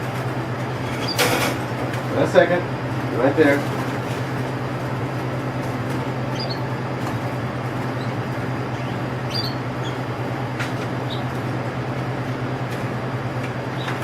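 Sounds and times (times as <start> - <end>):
steady low hum: 0.0 - 14.0
canary chirps: 6.2 - 6.7, 7.9 - 10.1, 11.0 - 11.4.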